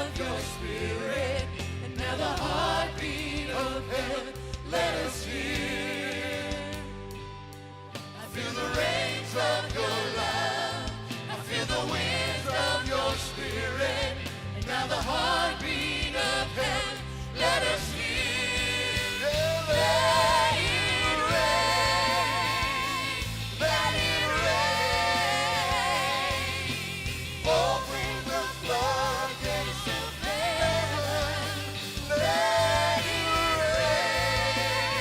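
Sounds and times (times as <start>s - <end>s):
praise band with singers: 0.0s - 35.0s.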